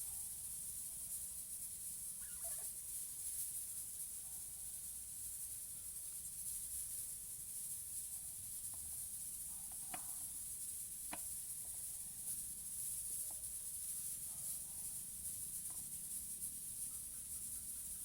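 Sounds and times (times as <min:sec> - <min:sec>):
steady high hiss: 0:00.0 - 0:18.0
parrots squeaking: 0:02.2 - 0:02.7.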